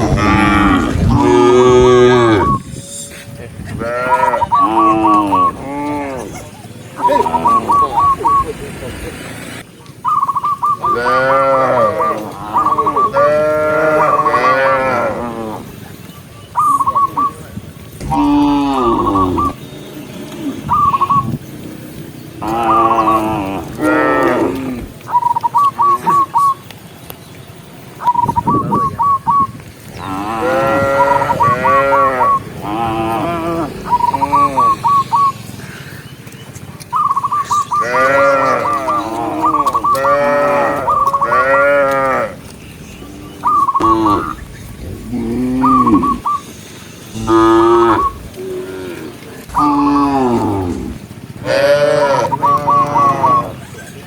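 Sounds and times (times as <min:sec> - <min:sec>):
cattle mooing: 0:00.0 - 0:02.6, 0:03.8 - 0:06.4, 0:07.0 - 0:07.9, 0:10.9 - 0:15.7, 0:18.0 - 0:19.6, 0:22.4 - 0:25.0, 0:30.0 - 0:35.0, 0:37.8 - 0:46.2, 0:47.1 - 0:53.6.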